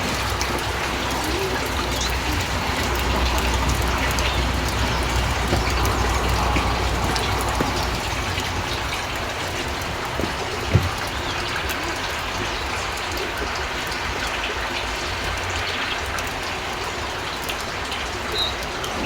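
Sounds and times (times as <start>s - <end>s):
drops ticking on surfaces: 0.0s - 11.6s
steady rain falling: 0.0s - 19.0s.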